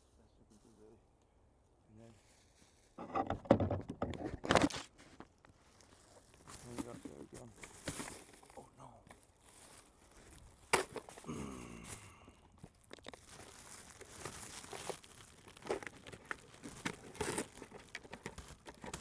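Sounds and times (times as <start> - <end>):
bag crinkling and rustling: 4.3 - 19.0.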